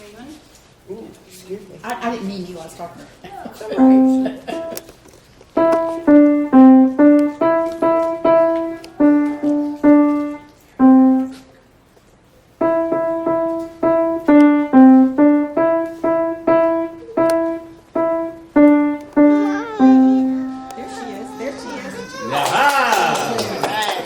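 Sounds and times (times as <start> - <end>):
simple piano melody: 3.8 - 4.9, 5.6 - 11.6, 12.6 - 21.9.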